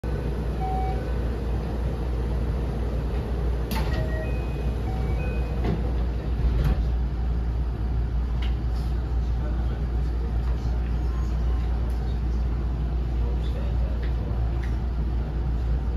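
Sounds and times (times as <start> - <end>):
train interior rumble: 0.0 - 15.9.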